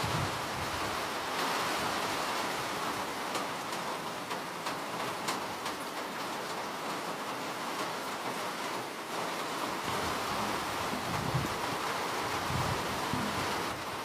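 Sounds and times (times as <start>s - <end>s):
rain hiss: 0.0s - 14.0s
raindrops ticking: 3.0s - 11.9s.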